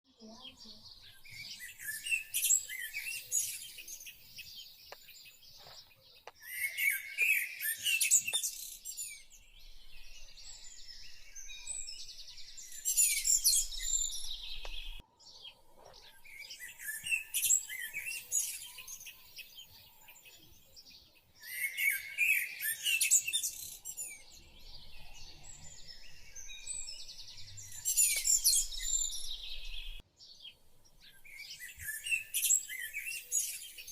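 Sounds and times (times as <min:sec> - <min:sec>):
small birds chirping: 0:00.1 - 0:33.9.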